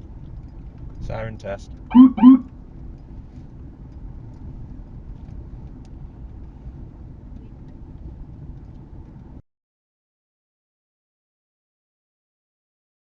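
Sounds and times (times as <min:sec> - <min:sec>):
low rumble of moving vehicle: 0:00.0 - 0:09.4.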